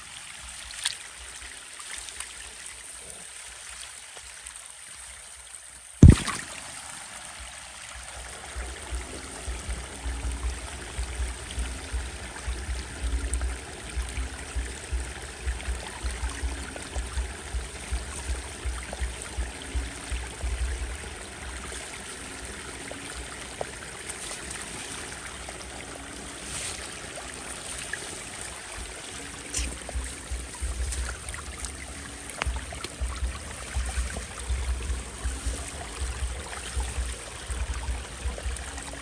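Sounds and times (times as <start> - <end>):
stream of running water: 0.0 - 39.0
low thumps: 6.0 - 6.4, 29.5 - 39.0
sharp knock: 6.0 - 6.4.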